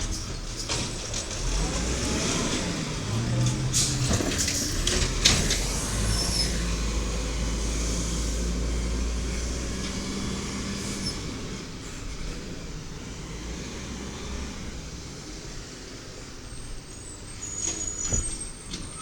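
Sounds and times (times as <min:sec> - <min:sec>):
garbage truck engine rumbling: 0:00.0 - 0:19.0
faint high squeaks: 0:16.9 - 0:19.0.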